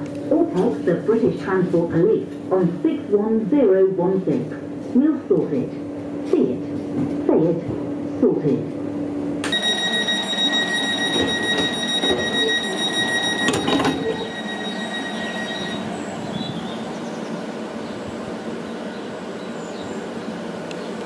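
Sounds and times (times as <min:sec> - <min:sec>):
high-pitched door warning tone: 0:09.4 - 0:16.8
train running: 0:09.4 - 0:21.0
sliding doors knocking shut: 0:11.0 - 0:12.6, 0:13.4 - 0:14.3.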